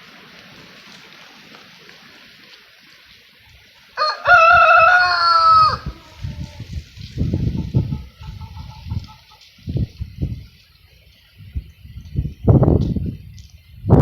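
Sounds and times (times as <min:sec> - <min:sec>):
wind rumbling on microphone: 0:02.9 - 0:14.0
rooster crowing: 0:04.0 - 0:06.8.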